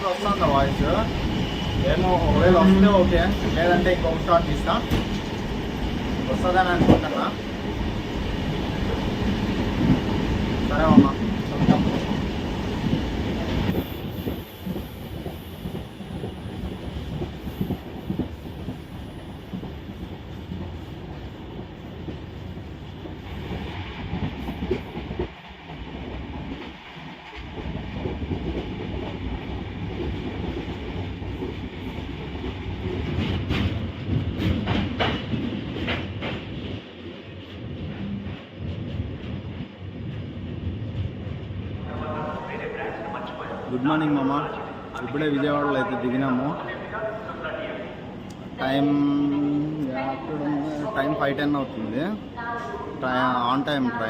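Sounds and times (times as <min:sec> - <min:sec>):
train wheels clacking: 0:00.0 - 0:41.4
train wheels rumbling on track: 0:00.0 - 0:54.0.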